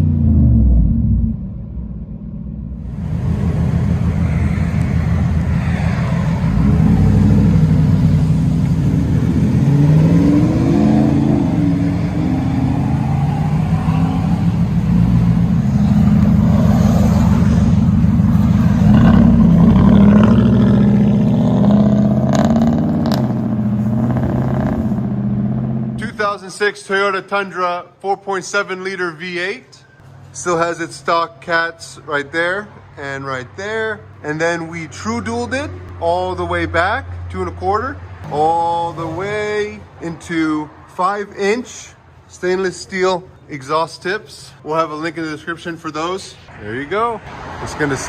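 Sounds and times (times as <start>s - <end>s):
deep exhaust drone: 0.0s - 26.2s.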